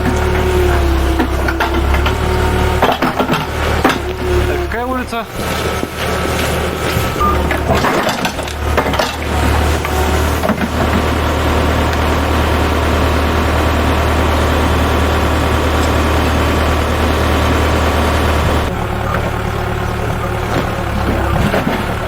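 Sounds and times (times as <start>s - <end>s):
knocks and clatters: 0.0s - 4.5s, 5.4s - 11.2s, 20.4s - 22.0s
heavy machinery engine droning: 0.0s - 22.0s.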